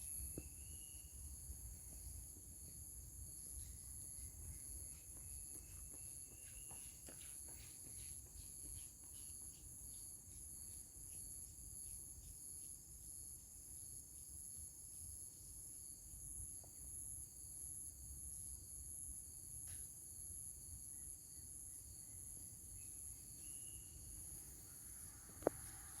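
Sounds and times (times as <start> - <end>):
insects droning: 0.0 - 26.0
faint footsteps: 4.5 - 9.6.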